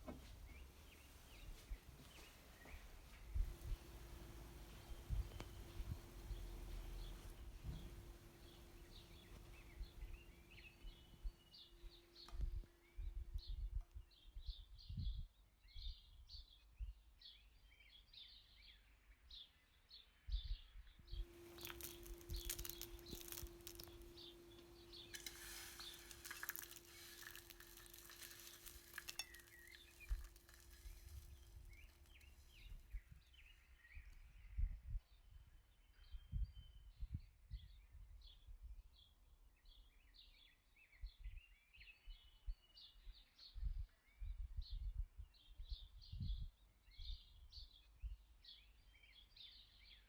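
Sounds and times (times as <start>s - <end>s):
faint birdsong chirps: 0.0s - 50.0s
steady low hum: 3.1s - 13.6s.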